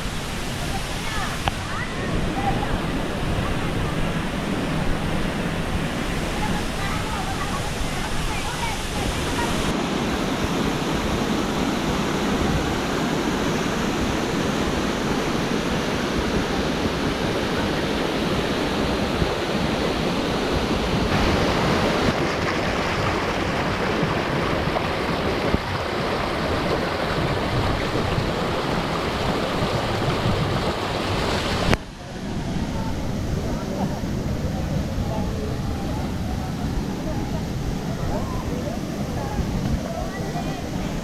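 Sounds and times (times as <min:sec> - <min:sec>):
waterfall pouring into pool: 0:00.0 - 0:02.7, 0:21.0 - 0:31.8.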